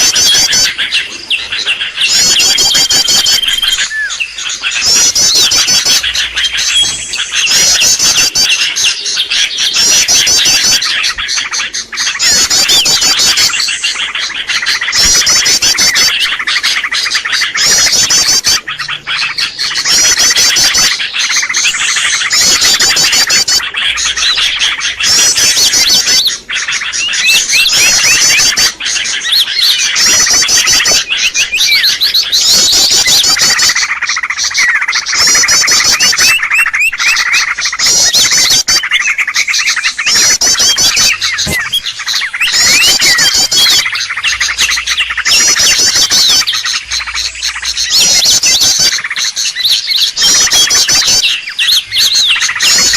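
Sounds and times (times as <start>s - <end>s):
small birds chirping chorus: 0.0s - 52.9s
short fast bird trills: 32.4s - 48.9s.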